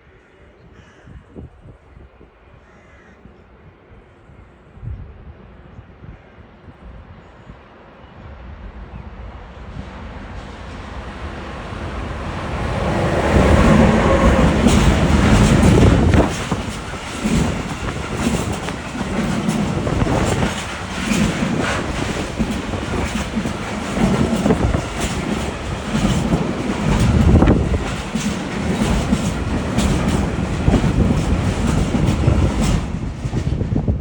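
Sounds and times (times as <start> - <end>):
freight train passing: 5.2 - 34.0
wheels clattering over rail joints: 11.2 - 33.8.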